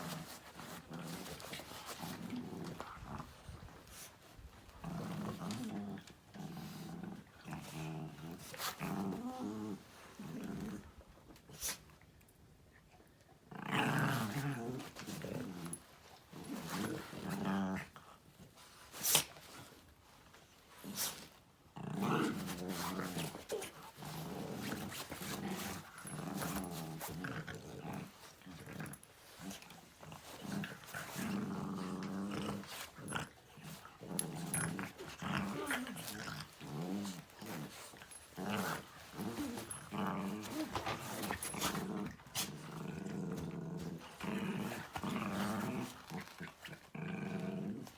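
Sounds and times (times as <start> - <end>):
dog growling: 4.7 - 10.9, 13.5 - 15.8, 21.8 - 47.9.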